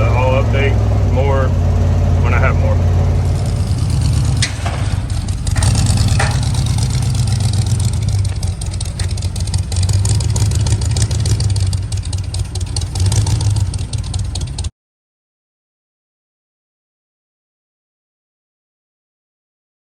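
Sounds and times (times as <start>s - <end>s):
truck engine droning: 0.0s - 14.7s.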